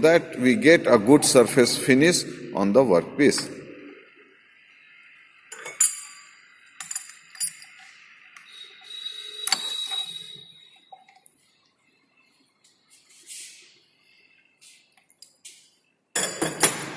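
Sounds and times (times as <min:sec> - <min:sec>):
metallic clinks and taps: 0:05.5 - 0:07.9.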